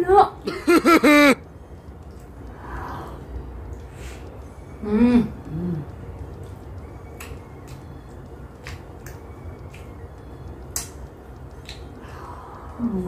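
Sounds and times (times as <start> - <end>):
wet mouth clicks and smacks: 5.9 - 12.1.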